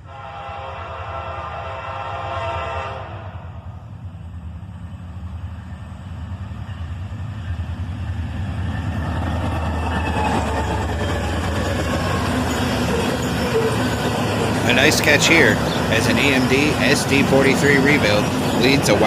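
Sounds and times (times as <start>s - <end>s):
diesel train engine drone: 0.0s - 19.0s
train wheels rolling on rails: 3.9s - 19.0s.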